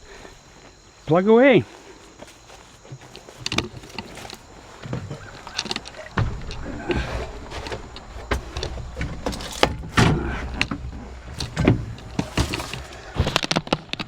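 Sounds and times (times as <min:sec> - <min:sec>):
backhoe engine running: 0:01.8 - 0:14.0
bucket clunks and knocks: 0:03.0 - 0:14.0.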